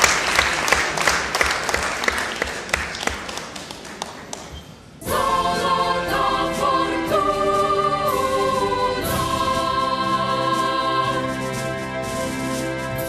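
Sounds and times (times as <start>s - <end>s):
audience applauding: 0.0s - 4.6s
choir music: 5.0s - 13.0s.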